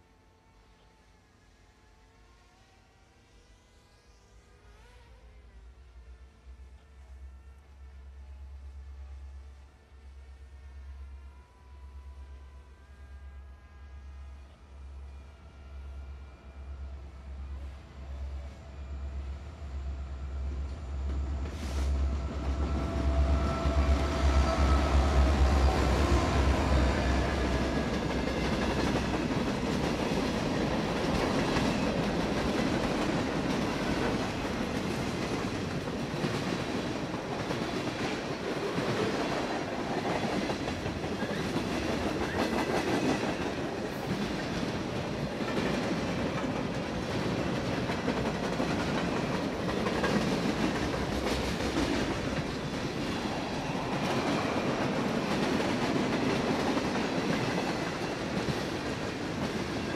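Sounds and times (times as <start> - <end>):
freight train wheels on rails: 11.1 - 59.9.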